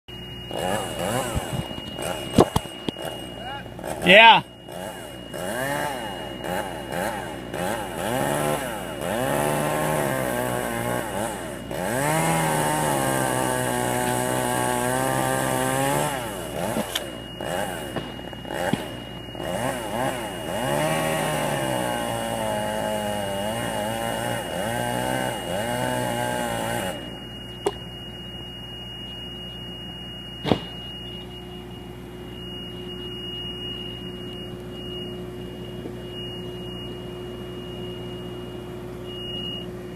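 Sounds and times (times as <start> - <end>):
steady hum: 0.1 - 39.9
chainsaw revving: 0.5 - 27.1.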